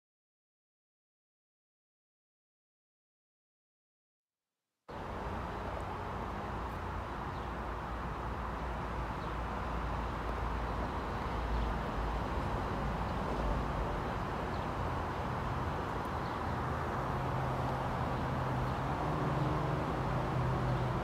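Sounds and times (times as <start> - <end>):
distant train rumble and hiss: 4.9 - 21.0
station outdoor noise: 4.9 - 21.0.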